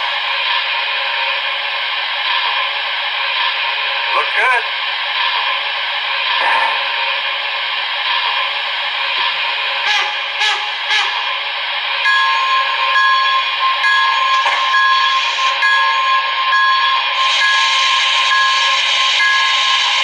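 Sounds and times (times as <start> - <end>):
pulsing ringing tone: 12.0 - 19.8
steam hiss: 14.3 - 15.6, 17.1 - 20.0.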